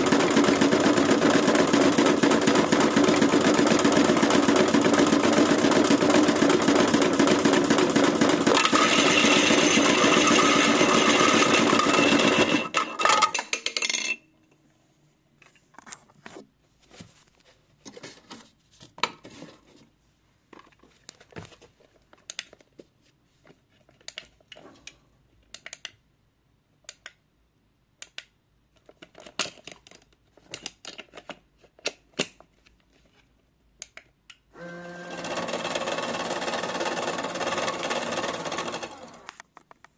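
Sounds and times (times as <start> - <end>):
washing machine running: 0.0 - 13.1, 34.6 - 39.3.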